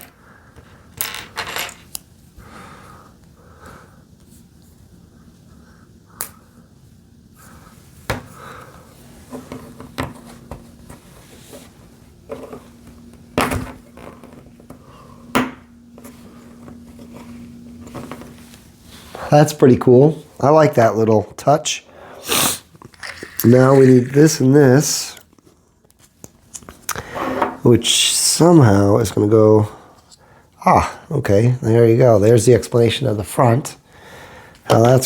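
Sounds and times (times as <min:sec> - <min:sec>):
plastic bricks clicking: 0:22.9 - 0:24.2.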